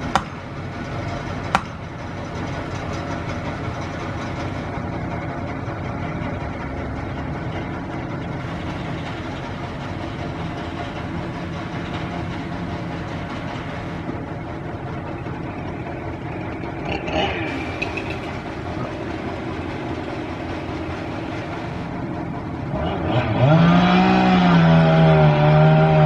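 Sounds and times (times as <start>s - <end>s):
engine running steadily: 0.0s - 26.0s
chainsaw revving: 16.8s - 19.0s, 22.8s - 26.0s.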